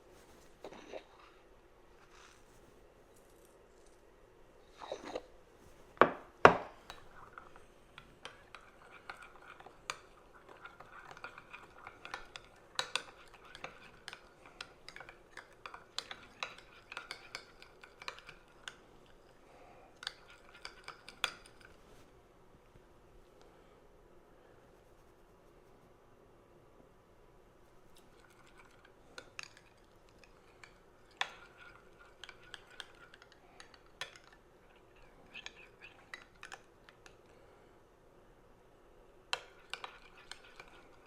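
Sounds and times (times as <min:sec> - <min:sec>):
spoon clinking against bowl: 0:08.2 - 0:18.8, 0:28.4 - 0:34.4, 0:39.3 - 0:41.0.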